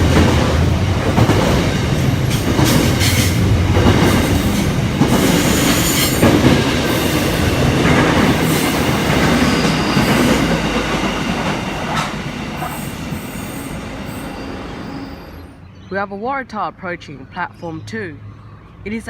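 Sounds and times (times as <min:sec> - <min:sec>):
wheels clacking over rail joints: 0:00.0 - 0:13.3
freight train rumbling past: 0:00.0 - 0:15.6.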